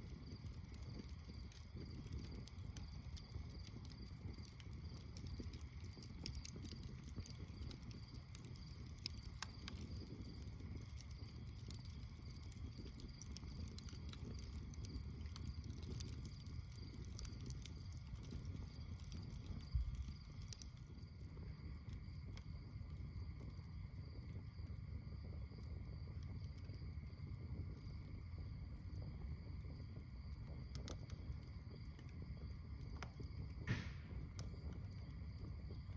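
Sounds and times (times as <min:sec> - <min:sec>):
campfire crackling and popping: 0:00.0 - 0:35.9
low thump: 0:33.6 - 0:34.2.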